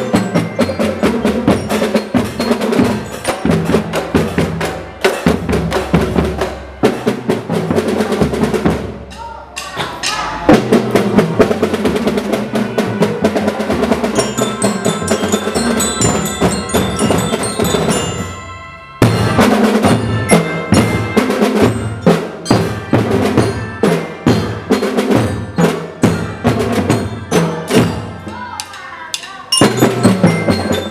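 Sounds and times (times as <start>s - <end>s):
melody on high metal bells: 0.0s - 4.6s, 13.8s - 28.3s, 29.2s - 30.9s
marching drums beating: 0.0s - 30.9s.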